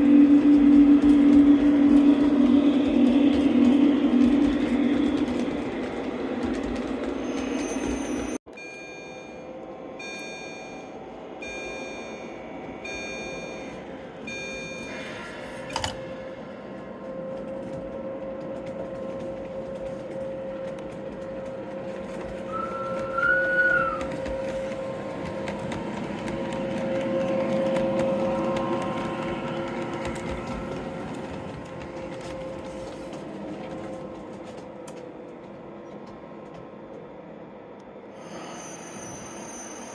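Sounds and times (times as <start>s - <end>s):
model trains rolling hum: 0.0s - 8.4s, 9.5s - 39.9s
beeping tone: 8.5s - 15.2s
short whistle-like tone: 22.5s - 24.1s.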